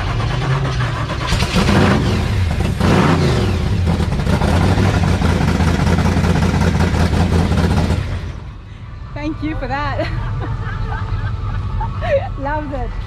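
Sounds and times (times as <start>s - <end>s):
supercharged engine revving: 0.0s - 8.6s
engine running loud: 0.0s - 13.0s.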